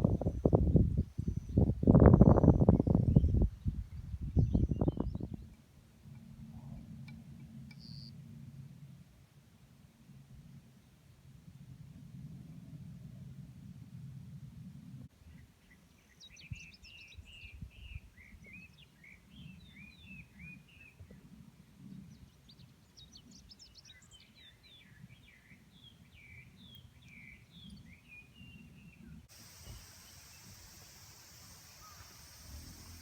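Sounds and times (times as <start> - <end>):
wind on microphone: 0.0 - 5.5
songbird singing: 0.0 - 5.6, 7.7 - 8.2, 15.3 - 21.0, 22.0 - 33.0
steady hiss: 29.3 - 33.0.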